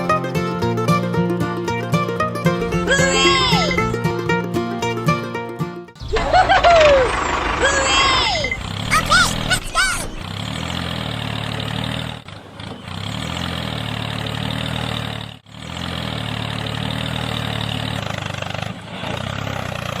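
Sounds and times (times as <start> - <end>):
engine idling: 2.6 - 4.2, 6.0 - 20.0.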